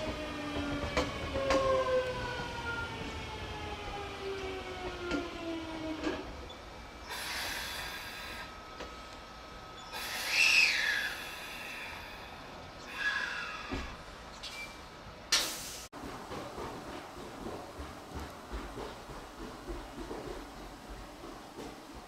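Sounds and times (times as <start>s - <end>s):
rising and falling squeal: 9.7s - 11.5s.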